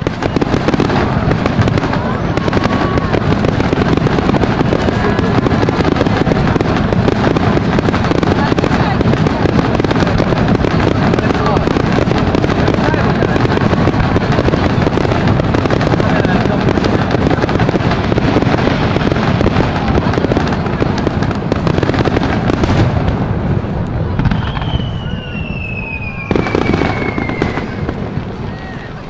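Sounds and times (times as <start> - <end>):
fireworks bursting and crackling: 0.0 - 29.0
high descending whistle: 24.4 - 27.9.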